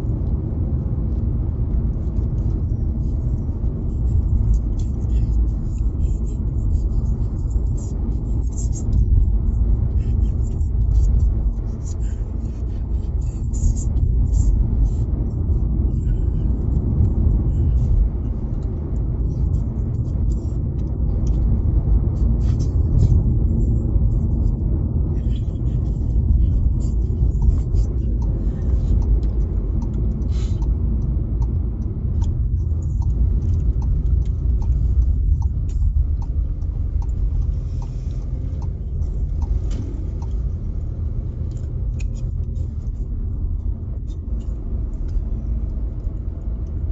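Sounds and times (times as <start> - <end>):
road rumble inside car: 0.0 - 46.9
light ticking: 23.0 - 46.9.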